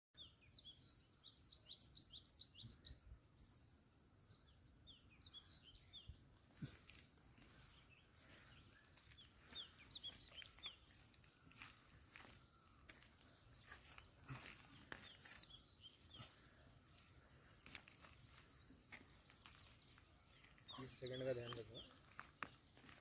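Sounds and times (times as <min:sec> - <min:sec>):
small bird chirping: 0:00.2 - 0:23.0.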